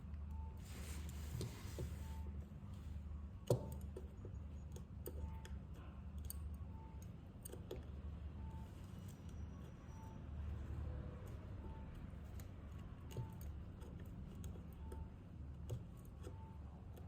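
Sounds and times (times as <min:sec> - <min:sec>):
small tools clicking on phone: 0:03.4 - 0:08.1, 0:11.2 - 0:17.0.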